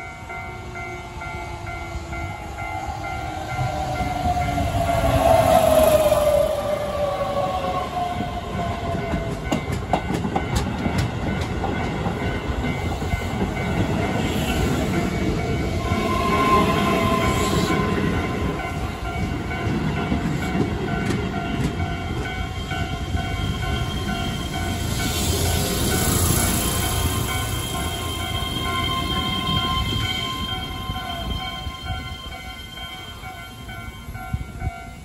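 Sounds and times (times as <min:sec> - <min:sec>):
train wheels rumbling on rail: 0:00.0 - 0:35.0
wheels clicking over rail joints: 0:08.0 - 0:16.2.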